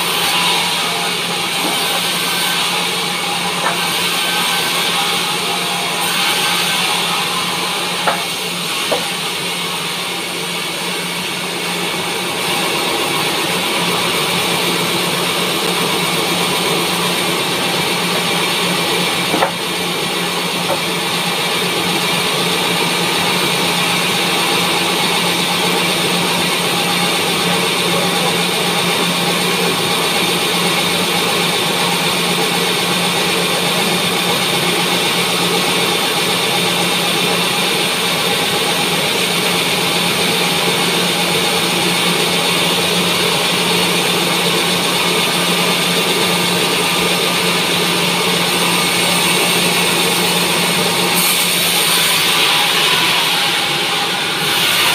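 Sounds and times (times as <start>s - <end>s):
bandsaw cutting logs: 0.0s - 54.9s
sharp knock: 8.0s - 8.3s, 19.3s - 19.7s.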